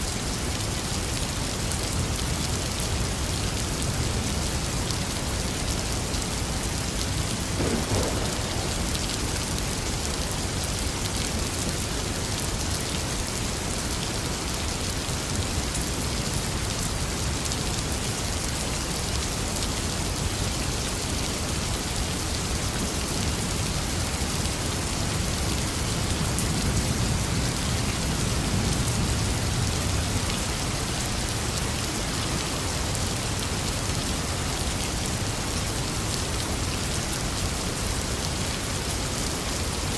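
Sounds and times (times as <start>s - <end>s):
steady rain falling: 0.0s - 39.9s
low rumble: 7.6s - 10.1s.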